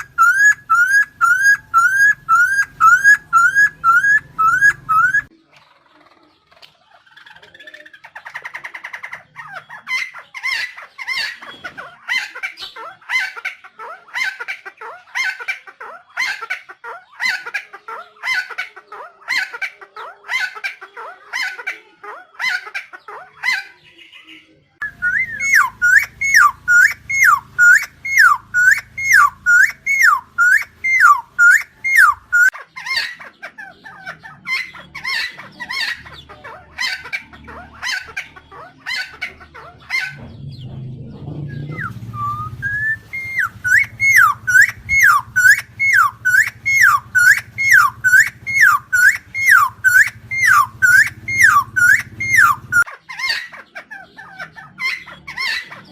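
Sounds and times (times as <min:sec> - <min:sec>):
bird calling harsh notes: 0:00.0 - 0:05.3, 0:24.8 - 0:33.2, 0:41.5 - 0:53.4.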